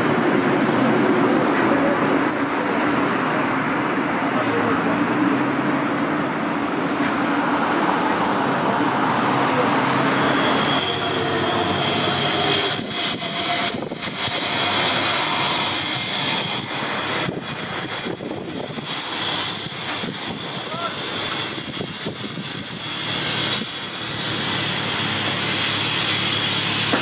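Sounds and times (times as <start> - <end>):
train running past: 0.0 - 27.0
high steady tone: 9.2 - 21.4.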